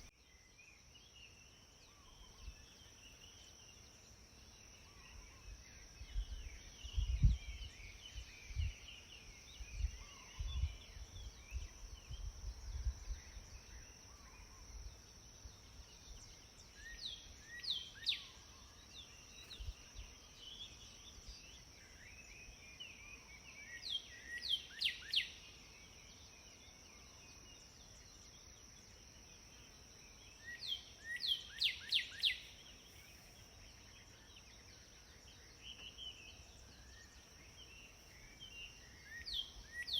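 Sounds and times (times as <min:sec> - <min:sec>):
sparrows chirping: 0:29.3 - 0:39.9.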